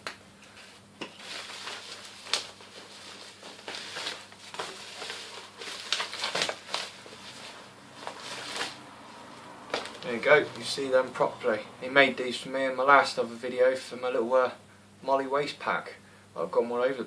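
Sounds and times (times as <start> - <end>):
packaging rustling and crinkling: 1.0 - 10.8.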